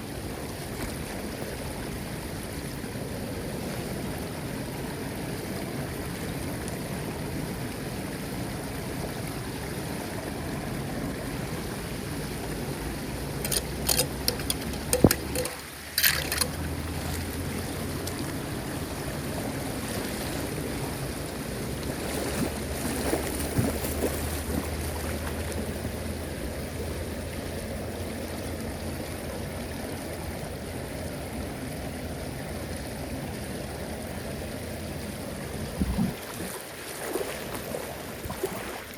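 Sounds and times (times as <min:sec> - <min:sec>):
sharp splashes or knocks: 0:22.2 - 0:24.6.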